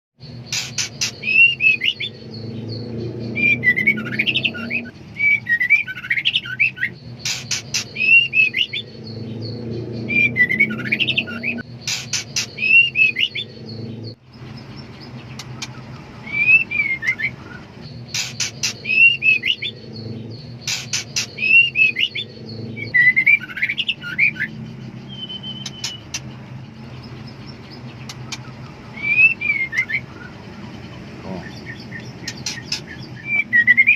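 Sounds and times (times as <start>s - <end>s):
bird clicks and chirps: 0.4s - 2.5s, 7.2s - 9.2s, 14.4s - 16.2s, 16.8s - 22.1s, 24.9s - 33.9s.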